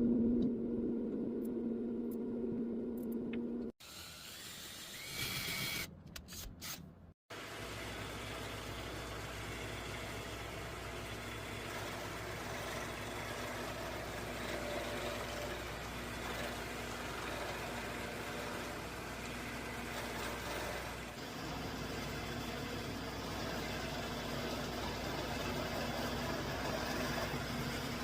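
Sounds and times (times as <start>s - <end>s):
machine motor low hum: 0.0s - 3.7s.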